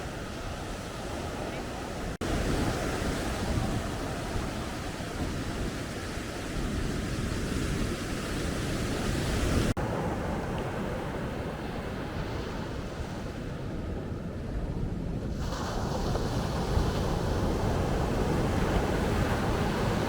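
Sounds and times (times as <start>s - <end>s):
surf breaking on a beach: 0.0s - 20.0s
wind buffeting the microphone: 0.0s - 20.0s.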